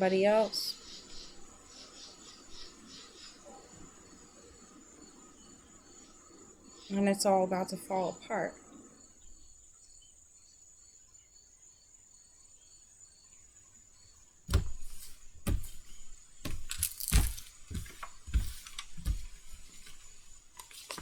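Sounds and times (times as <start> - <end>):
cards shuffled and tapped: 14.5 - 21.0.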